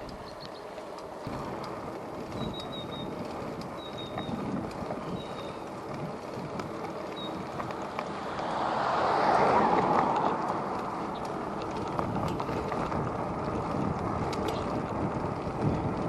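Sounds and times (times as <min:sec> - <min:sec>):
small clicks: 0:00.0 - 0:08.1, 0:14.2 - 0:14.9
bicycle rolling: 0:00.0 - 0:16.0
wind buffeting microphone: 0:00.0 - 0:16.0.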